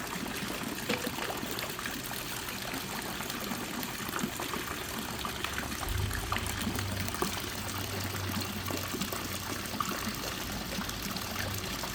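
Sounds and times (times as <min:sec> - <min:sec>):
water fountain trickling and dripping: 0:00.0 - 0:11.9
low hum: 0:05.6 - 0:08.6.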